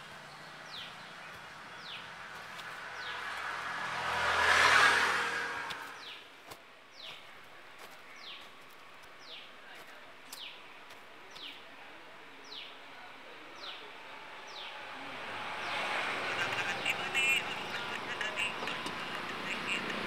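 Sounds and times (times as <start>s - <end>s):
motorbike: 0.0s - 6.2s, 13.7s - 20.0s.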